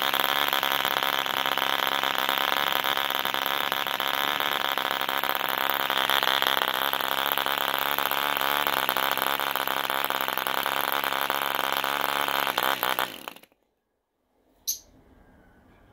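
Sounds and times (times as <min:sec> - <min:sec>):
model engine high buzzing: 0:00.0 - 0:13.6.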